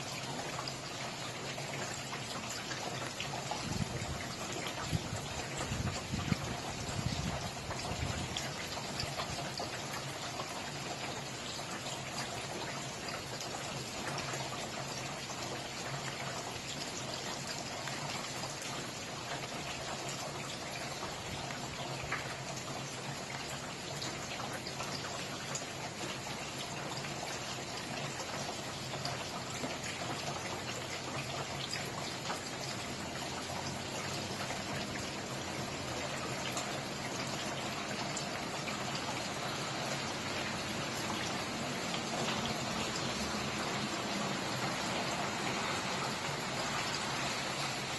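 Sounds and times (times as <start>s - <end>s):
rain patter: 0.0s - 47.9s.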